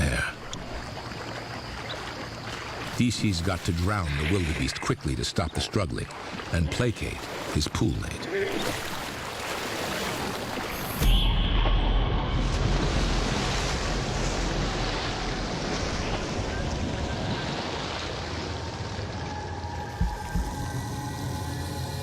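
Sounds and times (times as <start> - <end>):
water churning and splashing: 0.0 - 22.0
low thumps: 19.9 - 20.8.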